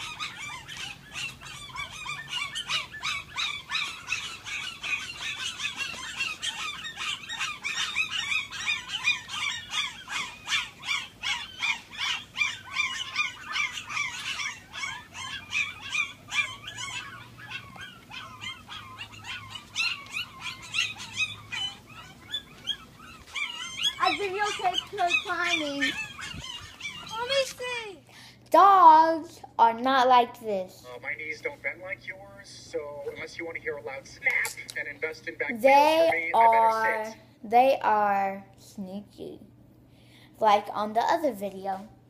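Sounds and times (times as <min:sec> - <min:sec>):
puppies whining and yelping: 0:00.0 - 0:27.9.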